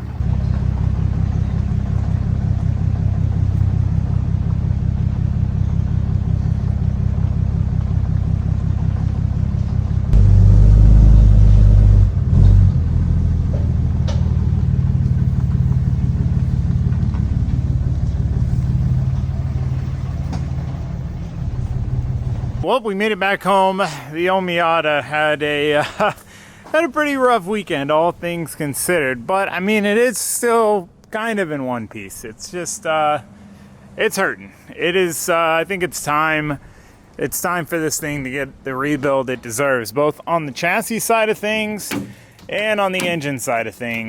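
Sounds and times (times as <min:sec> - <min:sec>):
car engine low rumble: 0:00.0 - 0:22.7.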